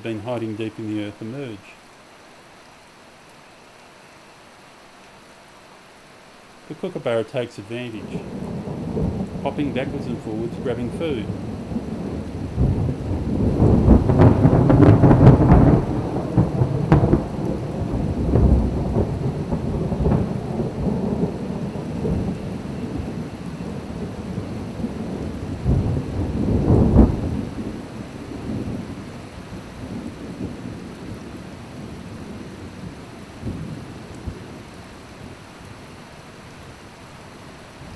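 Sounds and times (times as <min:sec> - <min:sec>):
steady rain: 0:00.0 - 0:37.9
thunder rumbling: 0:06.7 - 0:35.4.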